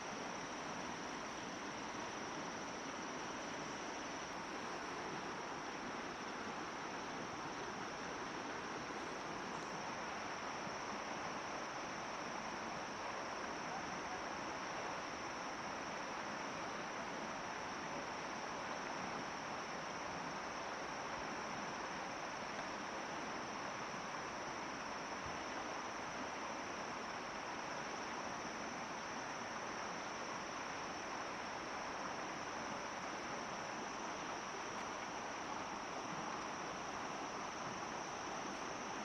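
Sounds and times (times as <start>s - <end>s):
insects buzzing: 0.0s - 12.1s.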